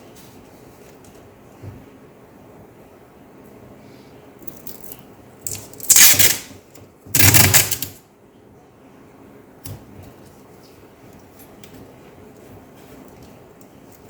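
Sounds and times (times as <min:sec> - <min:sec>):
loud scratchy noises: 0:05.5 - 0:06.5, 0:07.2 - 0:07.9.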